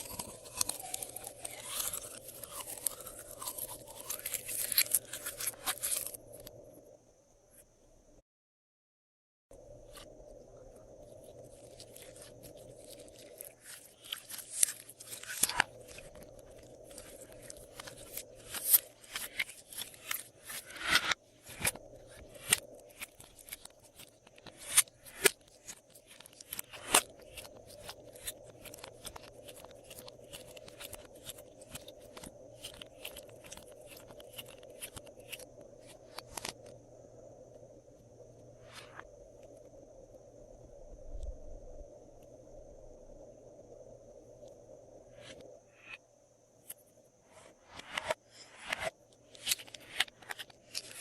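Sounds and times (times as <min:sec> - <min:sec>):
slime crackling and popping: 0:00.0 - 0:06.2, 0:11.6 - 0:20.3.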